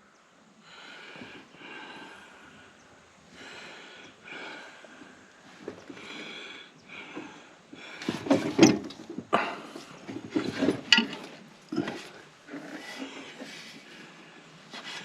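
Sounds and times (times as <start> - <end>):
rubbing and rustling: 7.9 - 15.0.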